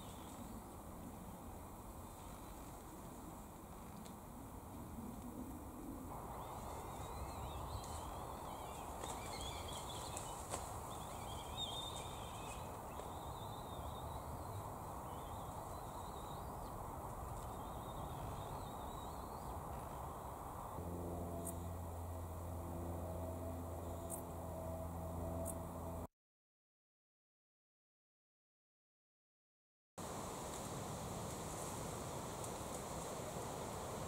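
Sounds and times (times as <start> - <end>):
birds twittering: 6.2 - 20.8
low hum: 19.8 - 26.1.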